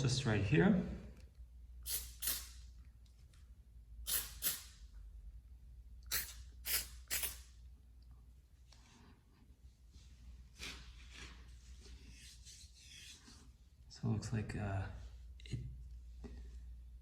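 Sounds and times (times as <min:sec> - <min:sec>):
aerosol can spraying: 0:01.8 - 0:02.7, 0:04.0 - 0:04.8, 0:06.1 - 0:07.6.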